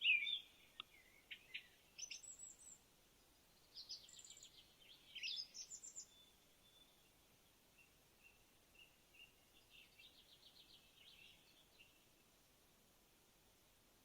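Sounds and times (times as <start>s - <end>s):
small bird chirping and trilling: 0.0s - 2.8s, 3.6s - 7.0s
faint hiss: 0.0s - 14.0s.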